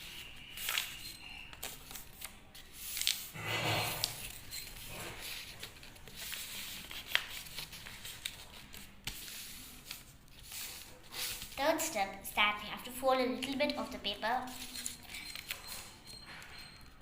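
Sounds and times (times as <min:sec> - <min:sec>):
paper being folded and creased: 0:00.0 - 0:11.9.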